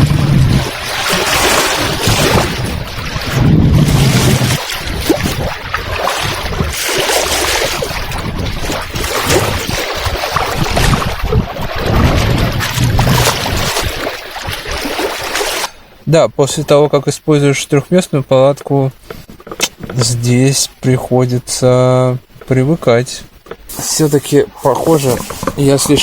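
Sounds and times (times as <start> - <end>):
wind buffeting the microphone: 0.0 - 14.8
lake waves washing onto shore: 0.0 - 15.8.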